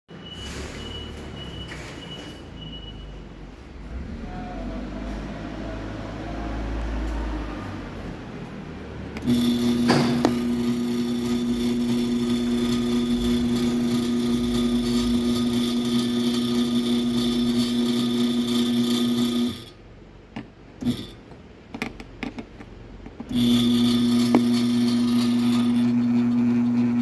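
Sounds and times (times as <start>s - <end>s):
garage door opener motor whining: 3.2s - 19.8s, 20.8s - 21.3s, 23.1s - 27.0s.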